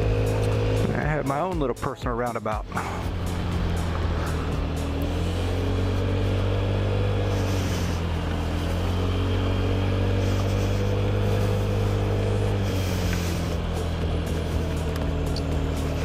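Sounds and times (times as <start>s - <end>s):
scooter engine running: 0.0s - 1.8s, 2.6s - 16.0s
tyre hiss on wet road: 3.3s - 14.6s.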